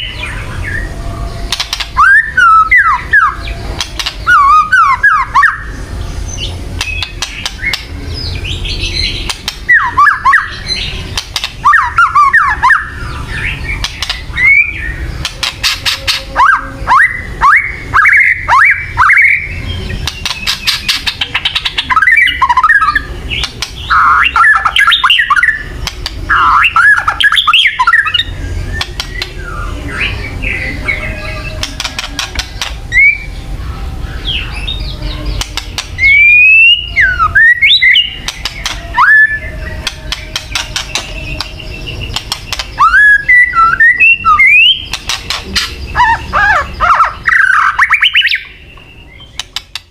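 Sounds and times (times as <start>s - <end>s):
bird whistled notes: 1.7s - 5.7s, 6.3s - 10.9s, 34.2s - 49.6s
bird rattling calls: 11.1s - 12.1s, 15.2s - 16.3s, 20.0s - 22.7s, 44.7s - 48.4s.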